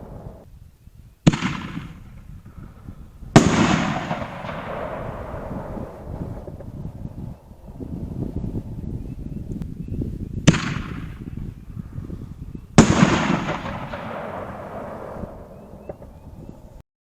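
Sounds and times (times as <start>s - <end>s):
firework shells booming: 1.2s - 7.3s, 10.4s - 11.3s, 12.7s - 16.2s.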